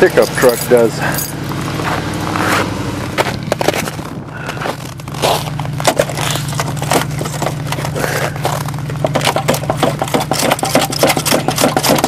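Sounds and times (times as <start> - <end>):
engine idling: 0.0 - 12.0
snow crunching and scraping: 1.0 - 9.0.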